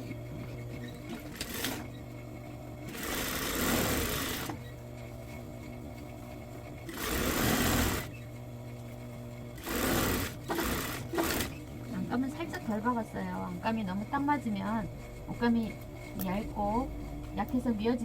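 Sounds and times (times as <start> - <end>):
steady hum: 0.0 - 18.0
sewing machine stitching: 1.0 - 1.9, 2.9 - 4.6, 6.9 - 8.2, 9.6 - 11.6.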